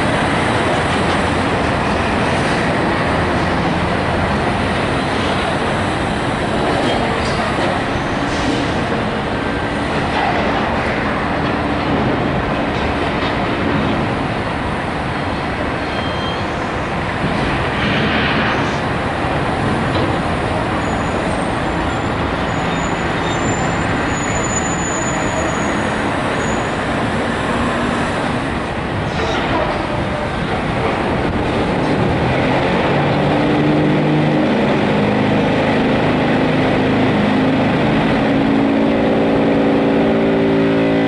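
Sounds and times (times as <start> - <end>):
heavy machinery rumble: 0.0 - 15.8, 16.6 - 41.0.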